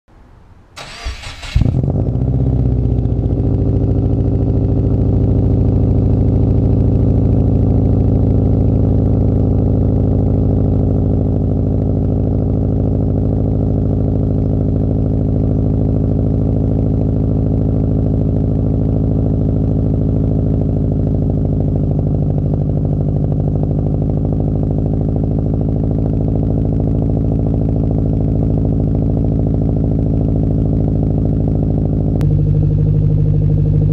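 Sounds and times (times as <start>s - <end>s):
car engine idling: 0.4s - 33.9s
car engine cranking: 0.8s - 2.0s.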